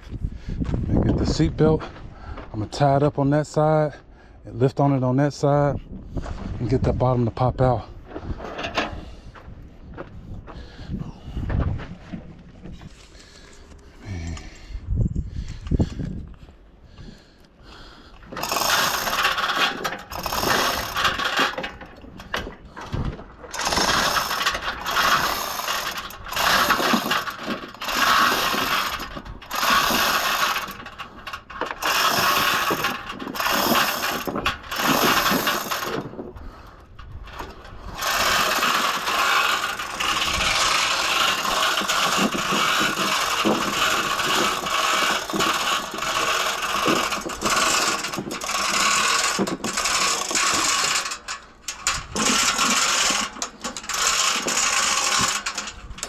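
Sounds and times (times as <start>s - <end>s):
hand ratchet clicking: 18.3s - 22.6s, 23.5s - 56.0s.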